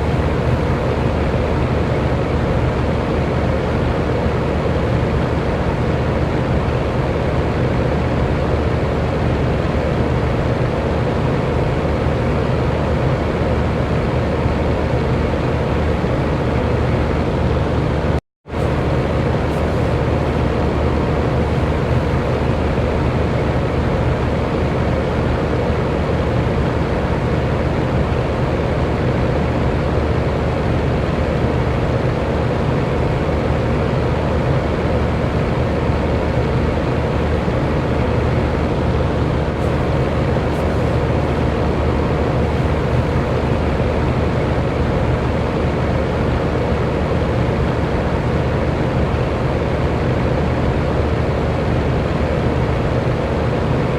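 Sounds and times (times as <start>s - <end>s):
electric fan whooshing: 0.0s - 53.9s
low motor hum: 32.4s - 46.5s.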